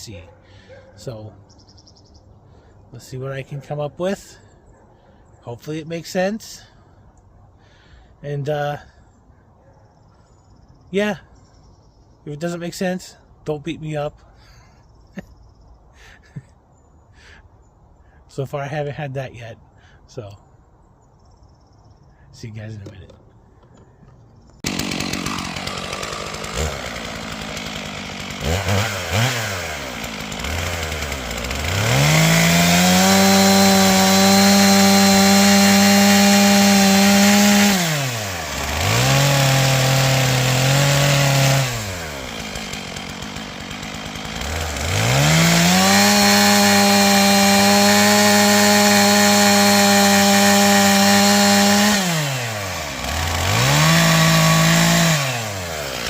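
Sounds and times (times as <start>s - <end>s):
chainsaw engine revving: 24.6s - 56.0s.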